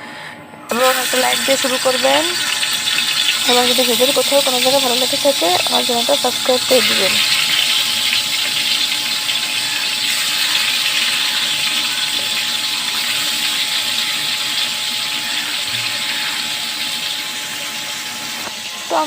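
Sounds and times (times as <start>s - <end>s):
faint steady hum: 0.0s - 17.7s
fish frying in hot oil: 0.7s - 19.0s.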